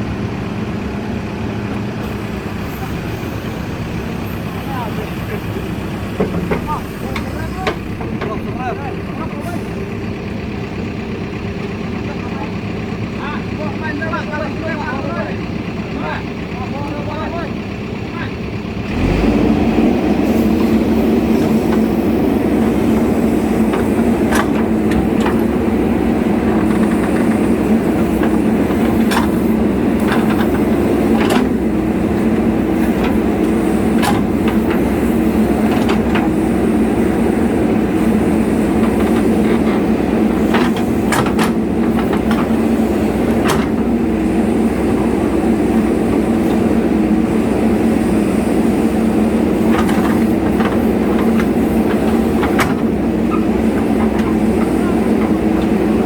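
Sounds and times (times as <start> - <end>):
diesel engine humming: 0.0 - 56.0
metallic clanks and knocks: 21.3 - 31.6, 38.0 - 43.9.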